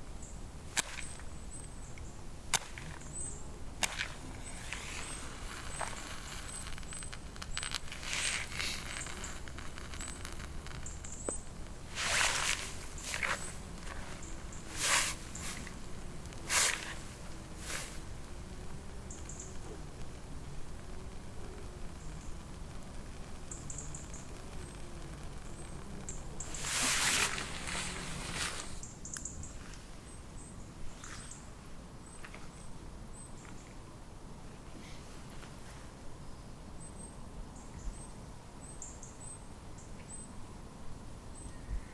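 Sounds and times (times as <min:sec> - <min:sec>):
rushing crackling noise: 0:02.5 - 0:28.9
footsteps crunching through snow: 0:03.8 - 0:10.6, 0:11.9 - 0:18.2, 0:26.4 - 0:28.9.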